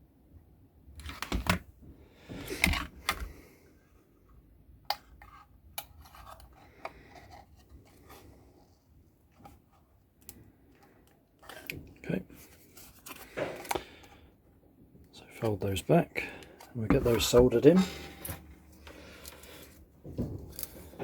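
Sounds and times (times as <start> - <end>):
hand tools clicking and scraping: 16.2 - 19.8.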